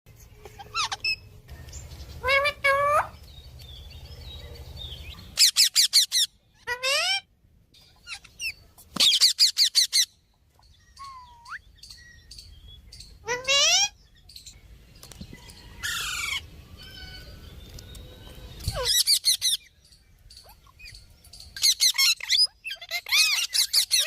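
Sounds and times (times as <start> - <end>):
parrot calling: 0.4 - 1.4, 2.2 - 3.2, 5.1 - 7.3, 7.9 - 10.2, 13.1 - 14.0, 21.6 - 24.0.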